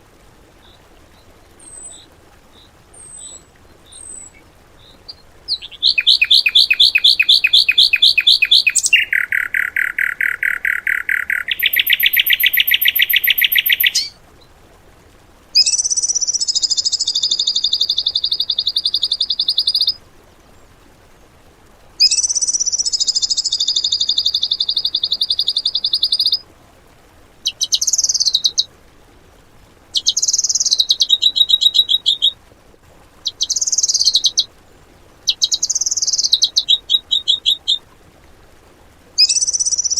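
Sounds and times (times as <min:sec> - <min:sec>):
songbird singing rapid trills: 0:00.6 - 0:14.5, 0:15.6 - 0:20.0, 0:22.0 - 0:26.4, 0:27.4 - 0:28.7, 0:29.9 - 0:32.4, 0:33.2 - 0:34.5, 0:35.2 - 0:37.8, 0:39.2 - 0:39.9.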